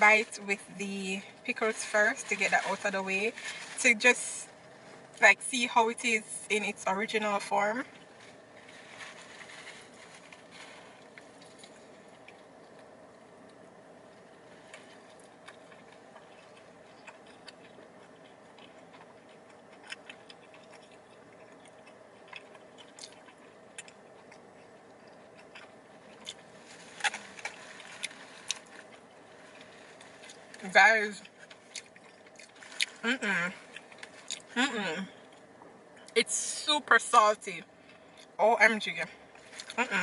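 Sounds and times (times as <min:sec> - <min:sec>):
low steady hum: 0:00.0 - 0:40.0
person chewing: 0:08.4 - 0:13.6, 0:14.3 - 0:30.6, 0:31.2 - 0:33.0, 0:33.6 - 0:36.2.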